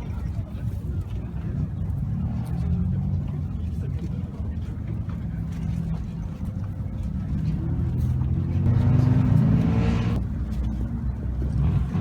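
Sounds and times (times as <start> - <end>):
engine exhaust rumbling and revving: 7.0 - 12.0.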